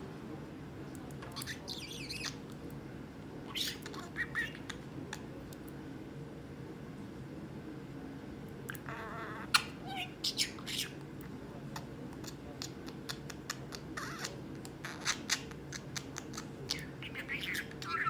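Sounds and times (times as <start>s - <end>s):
budgerigar chattering: 1.4s - 2.4s, 3.5s - 5.3s, 8.7s - 11.0s, 11.8s - 18.0s.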